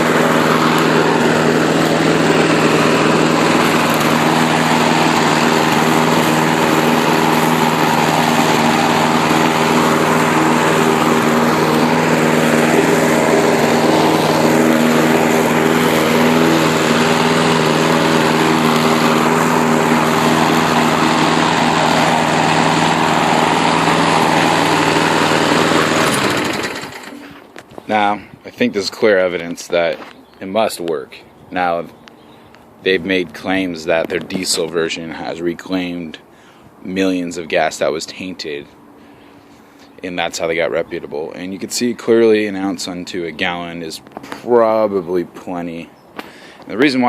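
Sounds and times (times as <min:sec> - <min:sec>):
lawn mower engine running: 0:00.0 - 0:47.0.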